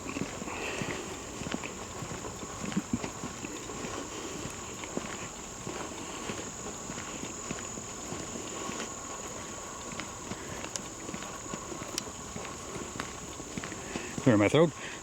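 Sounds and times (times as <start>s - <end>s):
footsteps on a trail: 0.0s - 15.0s.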